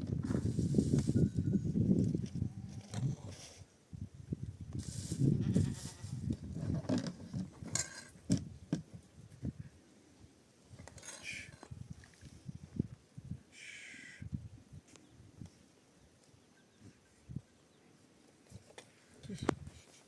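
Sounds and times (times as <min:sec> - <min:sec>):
livestock bleating: 0:05.4 - 0:06.2.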